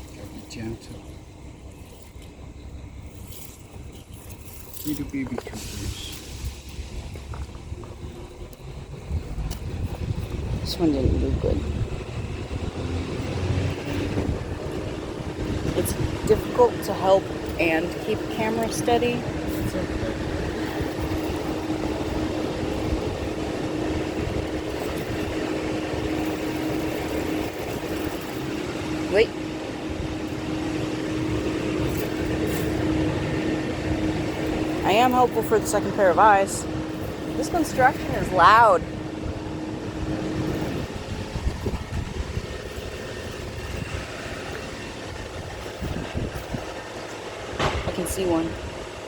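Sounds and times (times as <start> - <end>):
construction machinery droning: 0.0 - 49.0.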